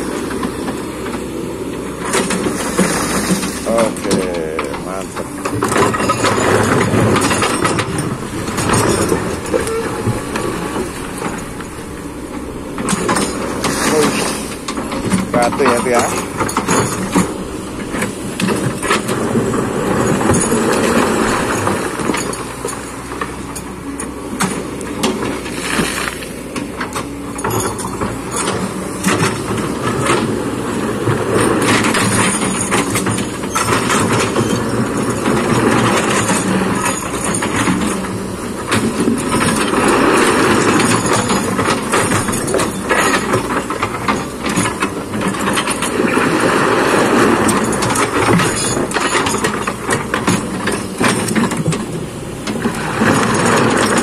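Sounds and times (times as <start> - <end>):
excavator engine under load: 0.0 - 54.0
bucket scraping rock and soil: 2.1 - 23.3, 25.4 - 27.2.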